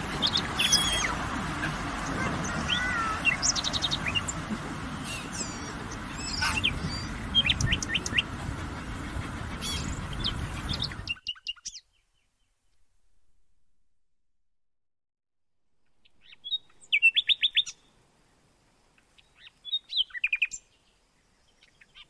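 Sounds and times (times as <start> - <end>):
birds chirping and trilling: 0.0 - 12.4, 16.0 - 17.9.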